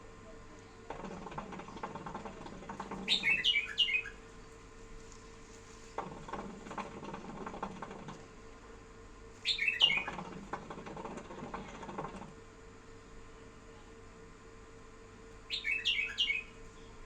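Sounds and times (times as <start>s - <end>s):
bird chirping: 3.1s - 4.2s, 9.4s - 10.1s, 15.5s - 17.0s
scratchy rustling with ticks: 4.9s - 8.3s.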